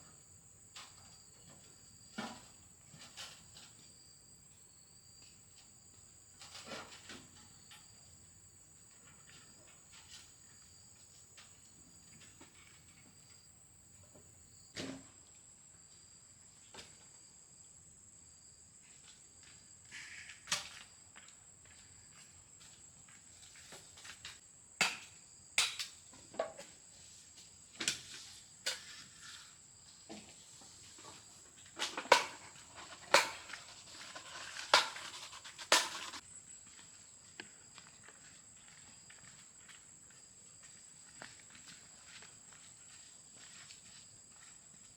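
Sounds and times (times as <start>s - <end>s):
insects trilling: 28.2s - 37.9s.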